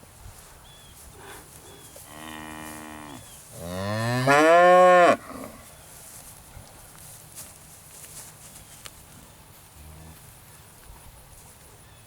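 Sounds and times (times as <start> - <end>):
cows mooing: 2.1 - 5.6.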